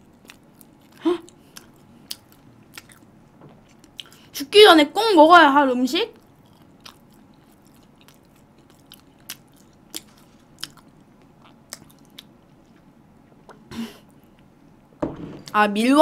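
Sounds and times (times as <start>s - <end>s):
person chewing: 0.0s - 4.3s, 6.2s - 13.4s.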